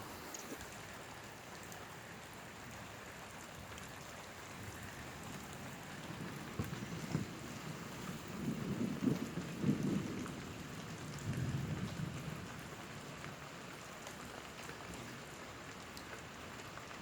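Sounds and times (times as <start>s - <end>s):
steady rain falling: 0.0s - 17.0s
low rumble of thunder: 4.5s - 13.5s.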